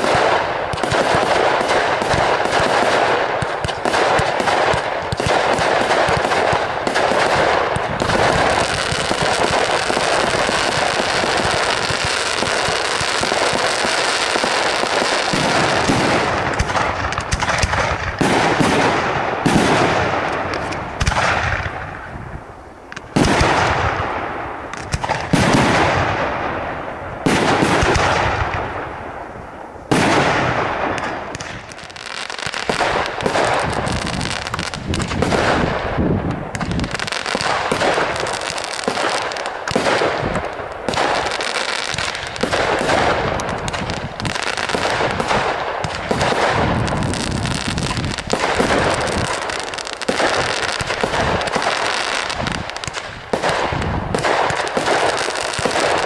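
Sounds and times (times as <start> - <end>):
rapid firework bangs and crackling: 0.0 - 56.0.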